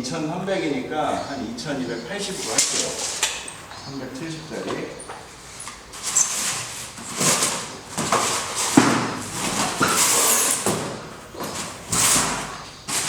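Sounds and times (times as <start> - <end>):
foam board scraping and rubbing: 5.4 - 13.0.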